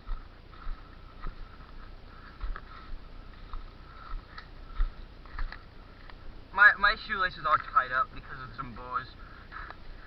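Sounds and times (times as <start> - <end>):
soft footsteps walking: 0.0 - 6.4.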